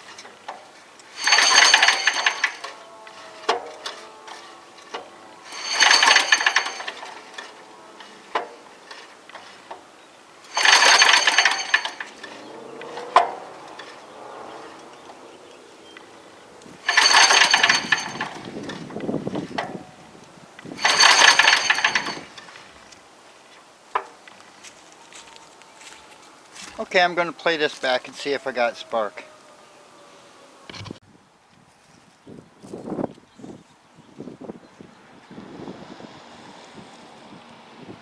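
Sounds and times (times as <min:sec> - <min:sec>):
engine cranking without firing: 0:00.0 - 0:23.0.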